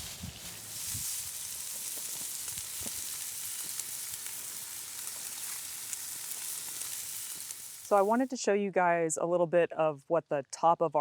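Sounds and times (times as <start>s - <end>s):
bacon sizzling in a frying pan: 0.0s - 8.3s.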